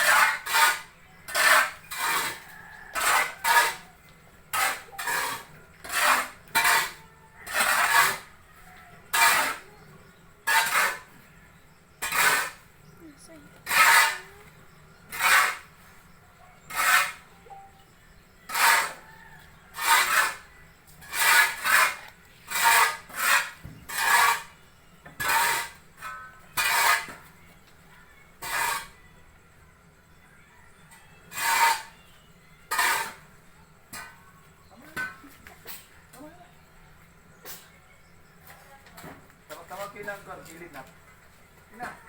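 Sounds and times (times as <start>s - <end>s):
rough scraping of sawdust by hand: 0.0s - 27.4s, 28.4s - 29.0s, 31.3s - 32.0s, 32.7s - 34.2s.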